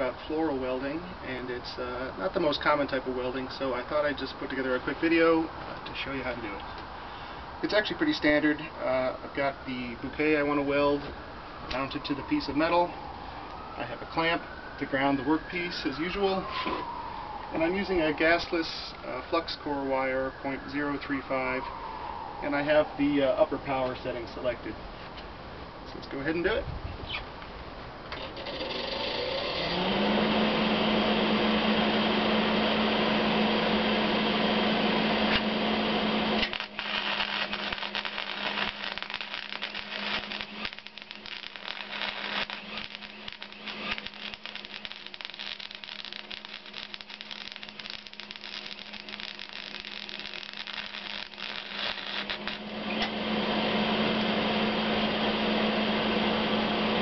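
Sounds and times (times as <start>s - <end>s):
electric motor humming: 29.2s - 57.0s
crackling and sputtering: 36.4s - 52.7s.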